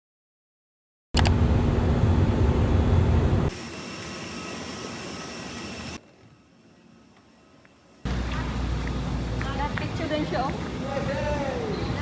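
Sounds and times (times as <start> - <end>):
jet engine rumble: 1.2 - 11.0
steady hiss with high whine: 3.4 - 8.0.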